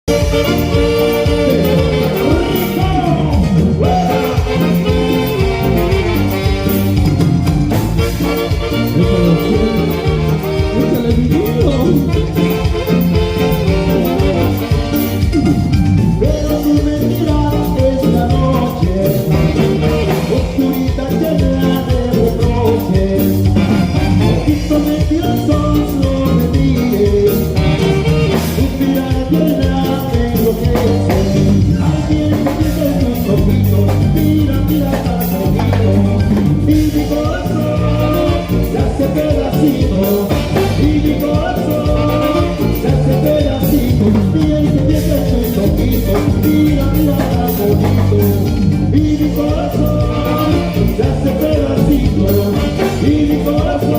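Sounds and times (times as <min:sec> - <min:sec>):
latin band horn section: 0:00.0 - 0:53.9
steady drum beat: 0:00.0 - 0:53.9.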